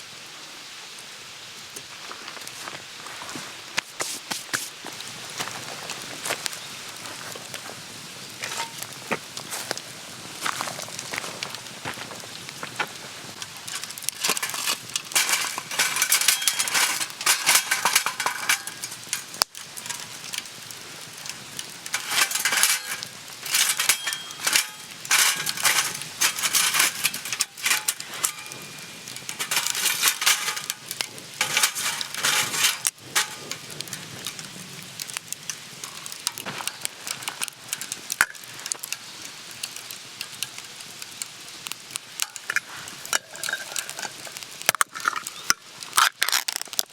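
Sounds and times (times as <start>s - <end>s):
metal utensil clinking on cookware: 8.4s - 8.8s, 13.7s - 20.1s, 21.2s - 33.7s, 42.2s - 45.5s.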